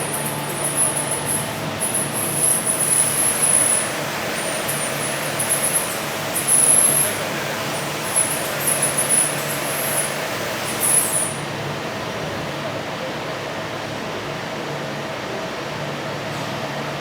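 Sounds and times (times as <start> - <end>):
machine mechanical hum: 0.0 - 17.0.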